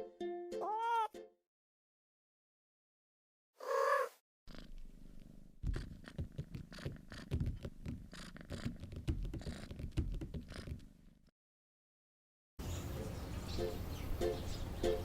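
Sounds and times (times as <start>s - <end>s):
cat meowing: 0.6s - 1.1s, 3.6s - 4.2s
cat purring: 3.6s - 11.2s.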